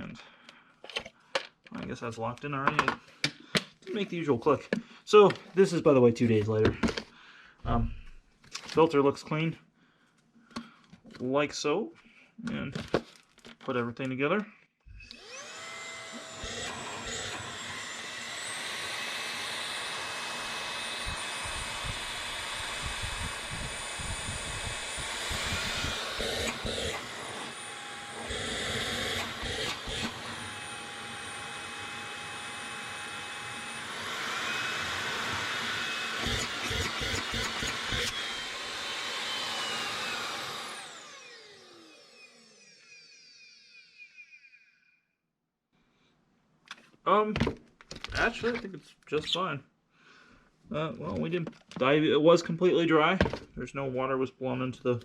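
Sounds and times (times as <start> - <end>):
vacuum motor whining: 14.9 - 44.7.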